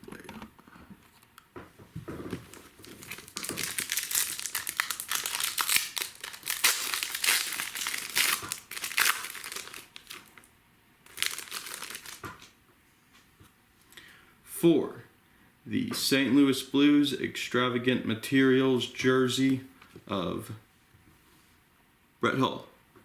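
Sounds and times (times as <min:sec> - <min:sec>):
plastic packaging crinkling and tearing: 0:02.3 - 0:12.5.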